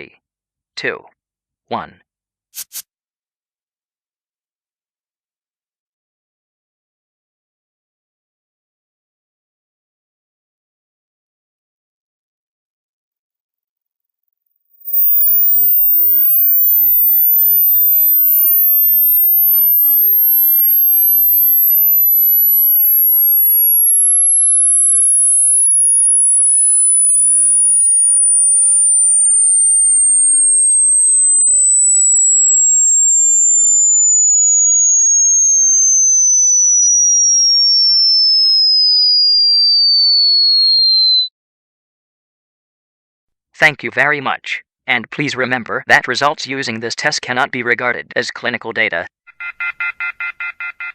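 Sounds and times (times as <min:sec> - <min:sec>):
pure sine tone gliding down: 0:14.8 - 0:41.3.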